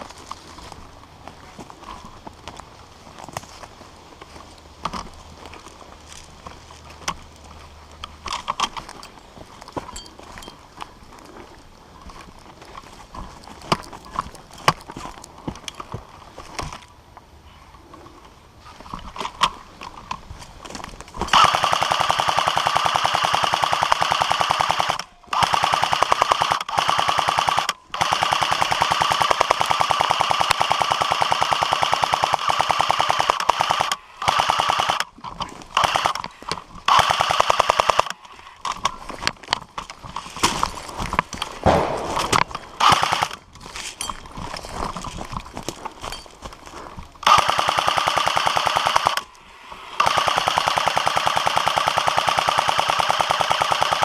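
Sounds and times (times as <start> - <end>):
airsoft gun automatic bursts: 21.3 - 35.1, 35.7 - 36.2, 36.9 - 38.2, 41.6 - 43.4, 47.2 - 49.3, 50.0 - 54.0.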